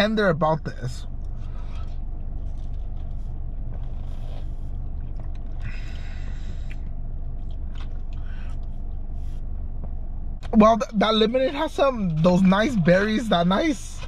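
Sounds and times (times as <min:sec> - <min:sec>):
steady low hum: 0:00.0 - 0:14.0
man chewing: 0:01.1 - 0:10.5.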